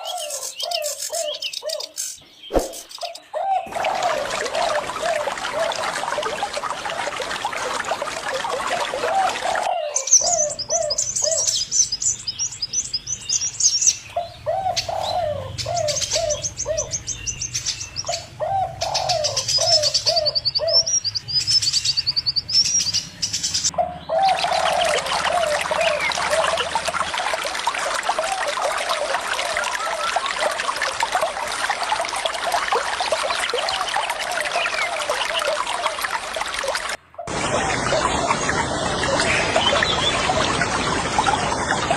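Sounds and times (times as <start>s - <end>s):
birds calling and trilling: 0.0s - 30.6s, 32.8s - 41.9s
running water rushing: 2.5s - 13.2s, 24.1s - 41.9s.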